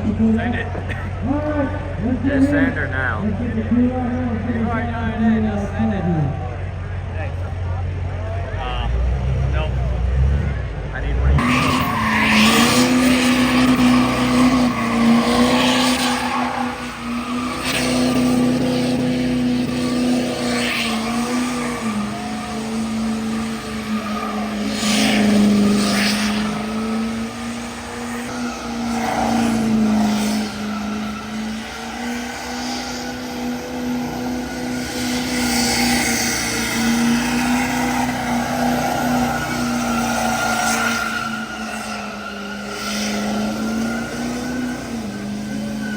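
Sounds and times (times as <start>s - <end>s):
truck engine at high revs: 0.0s - 45.9s
spinning tyres hissing: 11.2s - 45.9s.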